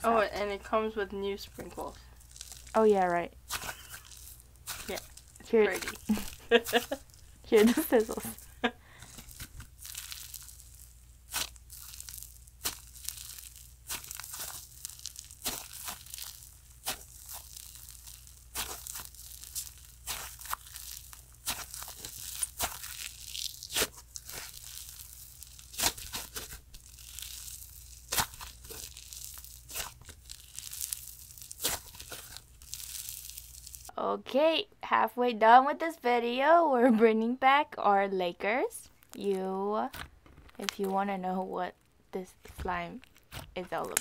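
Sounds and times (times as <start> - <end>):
slime crackling: 0.0 - 33.9, 38.7 - 44.0
sharp slime pops: 11.3 - 24.6, 25.6 - 26.6, 28.0 - 32.4.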